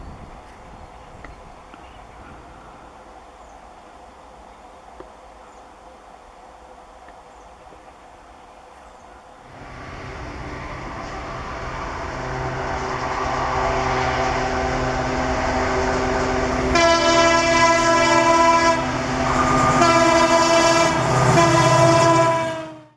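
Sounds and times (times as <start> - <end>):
train locomotive rumble: 0.0 - 22.9
locomotive horn blasts: 9.5 - 22.9.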